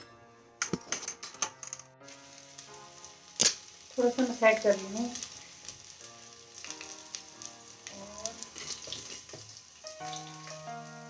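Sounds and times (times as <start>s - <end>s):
oil crackling: 1.6s - 11.0s
food sizzling in hot oil: 2.0s - 11.0s.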